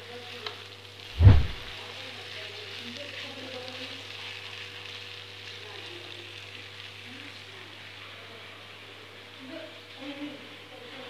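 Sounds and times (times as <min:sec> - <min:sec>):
food sizzling in a wok: 0:00.0 - 0:11.0
loud dull thump: 0:01.2 - 0:01.7.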